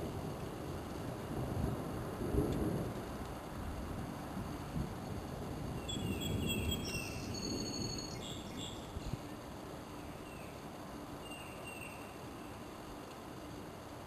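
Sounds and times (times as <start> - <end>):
wind rumble: 0.0 - 14.0
small birds chirping: 5.8 - 10.6, 11.2 - 12.6.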